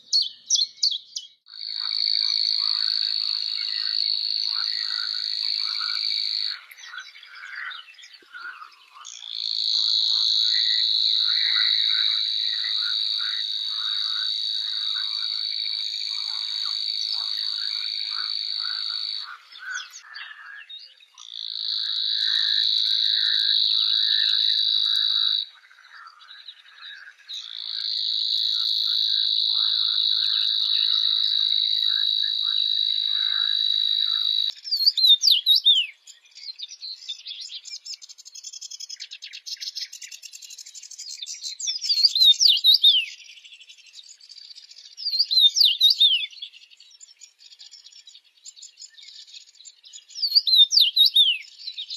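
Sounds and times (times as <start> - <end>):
frogs short low calls: 1.5 - 36.0
frog high steady trill: 1.6 - 6.8, 8.5 - 20.6, 21.2 - 34.5.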